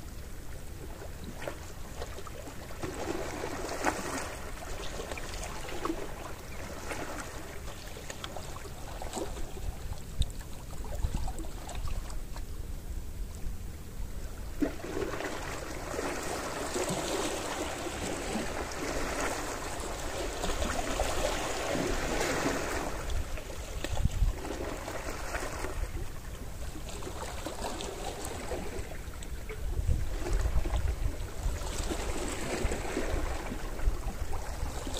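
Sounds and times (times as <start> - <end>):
sea waves washing onto shore: 14.7 - 25.9.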